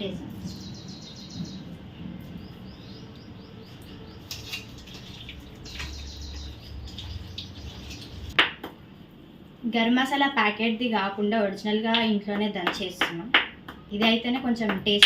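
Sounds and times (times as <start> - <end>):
birds chirping: 0.0 - 8.4.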